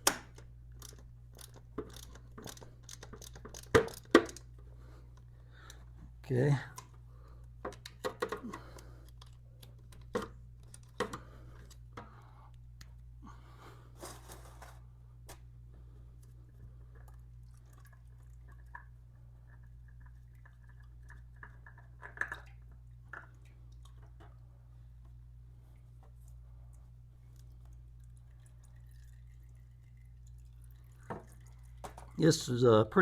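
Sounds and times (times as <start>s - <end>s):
tool clicks and knocks: 0.0s - 4.5s, 7.6s - 8.5s
steady low hum: 0.0s - 33.0s.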